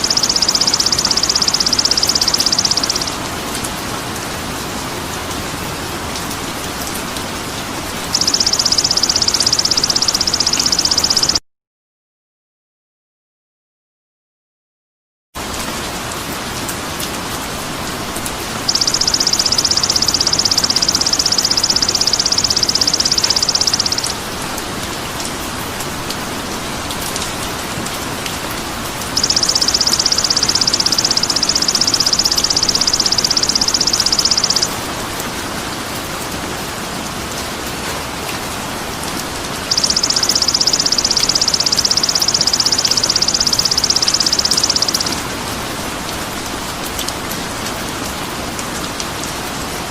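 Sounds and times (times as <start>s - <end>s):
high rapid buzzing bird trill: 0.0s - 3.2s, 8.1s - 11.4s, 18.7s - 24.2s, 29.2s - 34.8s, 39.7s - 45.2s
steady rain-like hiss: 0.0s - 11.3s, 15.4s - 49.9s.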